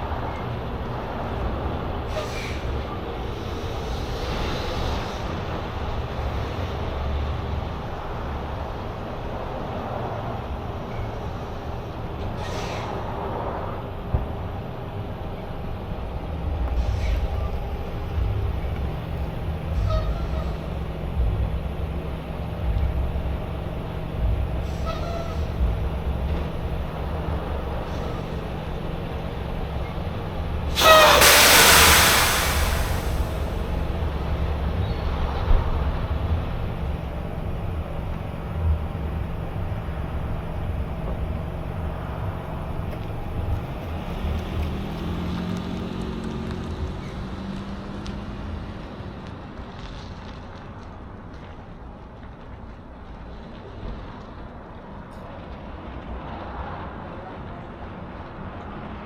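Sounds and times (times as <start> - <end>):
truck diesel engine and road noise: 0.0 - 59.0
faint brief squeaks: 12.4 - 12.9, 30.8 - 33.3.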